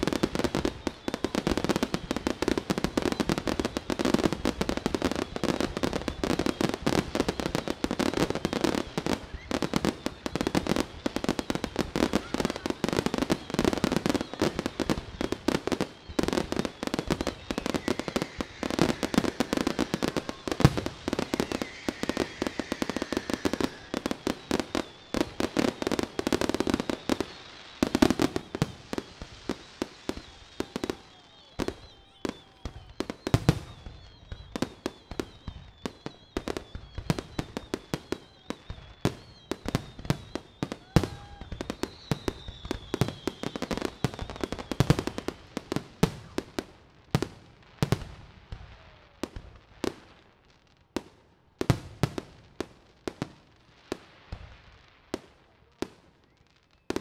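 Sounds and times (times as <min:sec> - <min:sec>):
fireworks crackling: 0:00.0 - 0:57.0
thin wavering whistle: 0:12.1 - 0:28.2, 0:29.6 - 0:44.7.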